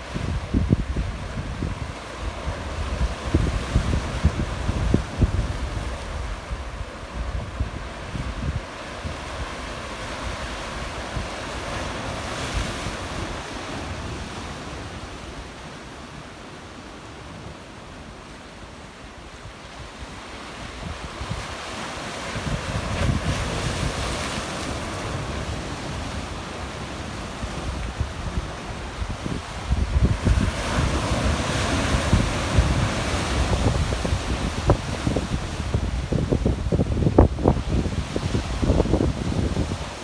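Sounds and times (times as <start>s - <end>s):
wind buffeting microphone: 0.0s - 9.5s, 22.3s - 24.2s, 27.4s - 40.0s
waves against rocky shore: 0.0s - 40.0s.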